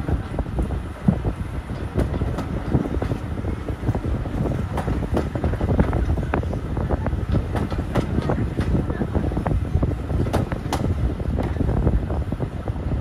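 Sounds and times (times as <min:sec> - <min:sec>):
railway carriage rumbling: 0:00.0 - 0:13.0
wind buffeting the microphone: 0:00.0 - 0:13.0
knocks and rattles: 0:07.2 - 0:08.9.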